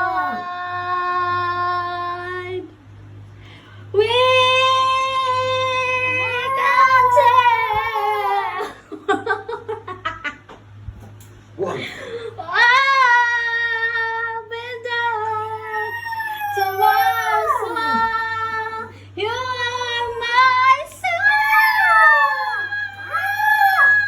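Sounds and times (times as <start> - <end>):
dog howling: 15.5 - 18.1, 21.1 - 24.0.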